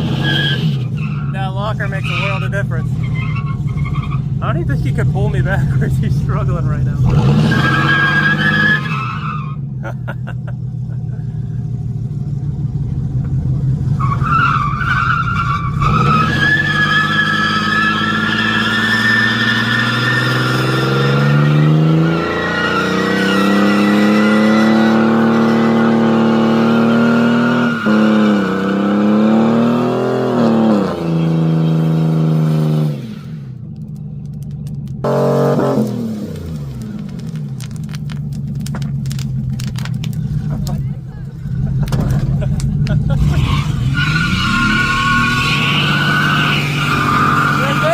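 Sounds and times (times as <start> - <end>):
truck engine revving hard: 0.0 - 9.6, 14.0 - 33.6, 35.0 - 37.3, 41.5 - 47.9
tyres spinning and squealing: 0.0 - 9.8, 14.0 - 32.0, 34.9 - 47.9.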